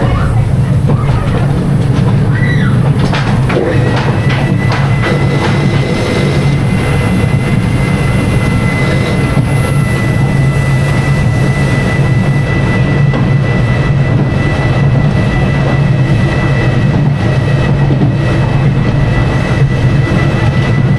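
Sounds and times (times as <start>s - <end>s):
roller coaster rumble: 0.0s - 20.9s
thin steady whine: 0.0s - 20.9s.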